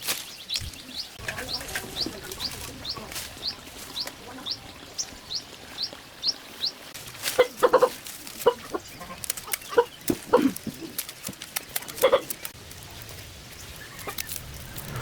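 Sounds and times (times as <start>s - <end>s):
small bird chirping: 0.2s - 12.6s
chickens clucking: 0.6s - 12.6s.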